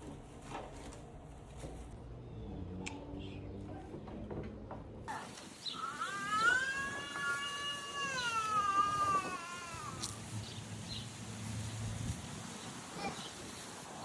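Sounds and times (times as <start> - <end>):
high-pitched wavering cry: 5.8 - 10.1.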